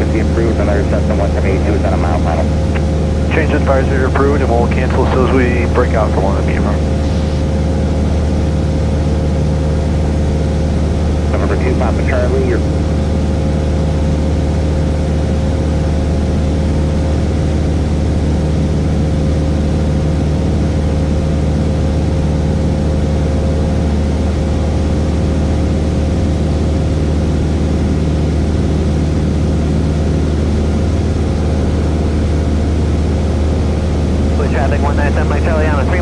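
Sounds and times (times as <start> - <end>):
airplane engine and propeller drone: 0.0 - 36.0.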